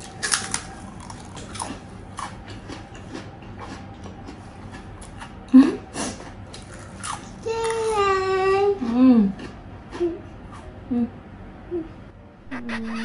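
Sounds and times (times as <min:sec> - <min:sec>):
soft chewing: 0:00.4 - 0:07.2.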